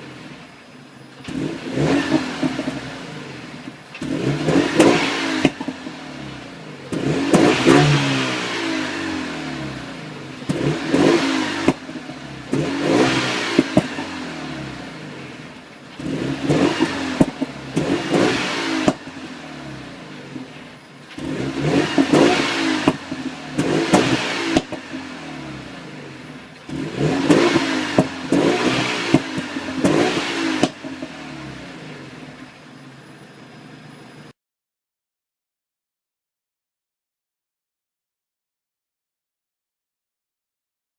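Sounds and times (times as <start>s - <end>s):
car engine revving: 0.0s - 34.1s
exhaust pops and crackles: 13.6s - 14.0s, 16.7s - 18.2s, 18.8s - 19.1s, 22.0s - 25.0s, 26.5s - 31.2s.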